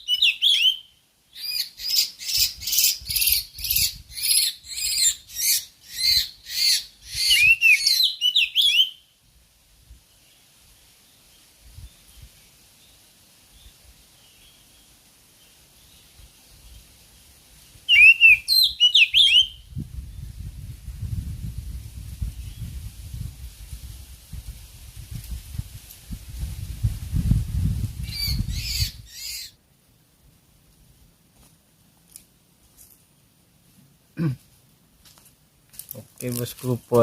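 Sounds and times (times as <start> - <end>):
bird whistled notes: 0.0 - 9.0, 17.9 - 19.7, 28.0 - 29.6
bird harsh rasping notes: 28.0 - 29.6.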